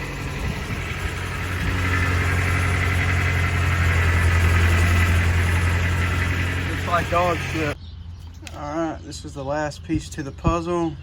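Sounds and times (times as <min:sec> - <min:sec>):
pickup engine idling: 0:00.0 - 0:07.8.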